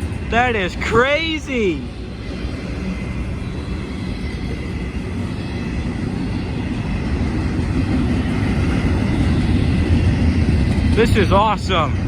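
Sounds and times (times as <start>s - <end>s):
steel wheels rumbling on rails: 0.0s - 12.0s.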